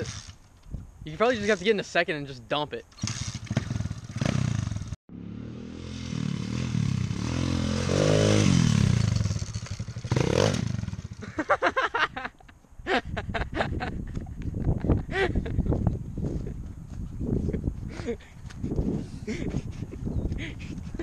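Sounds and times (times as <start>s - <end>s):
motorbike engine revving: 3.0s - 11.3s.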